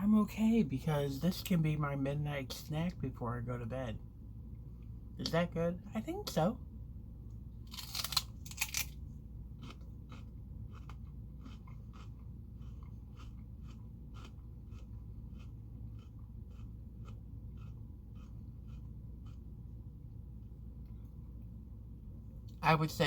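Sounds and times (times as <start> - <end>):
chewing crunchy food: 7.7 - 19.8.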